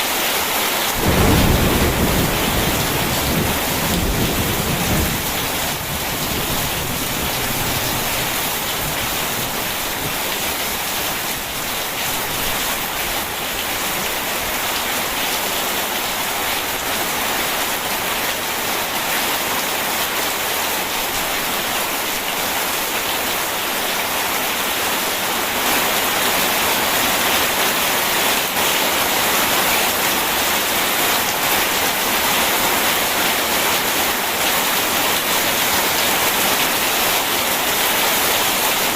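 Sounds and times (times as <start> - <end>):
steady rain: 0.0 - 38.9
low thunder rumble: 1.0 - 10.4.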